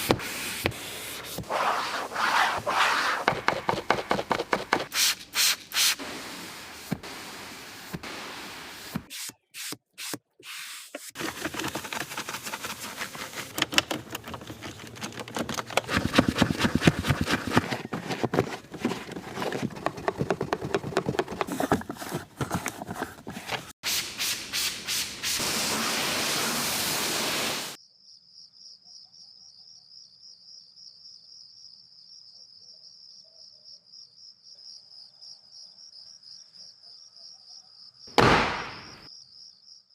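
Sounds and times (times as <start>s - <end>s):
fast scrubbing strokes: 0.0s - 9.1s, 11.1s - 23.8s
cricket chirping: 27.8s - 39.9s.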